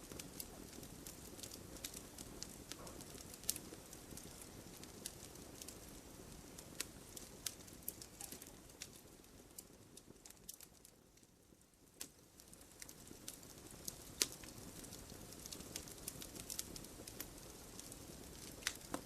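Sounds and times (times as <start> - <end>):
logs crackling and snapping: 0.0 - 11.2, 11.9 - 19.0
fire low rumble: 0.0 - 19.0.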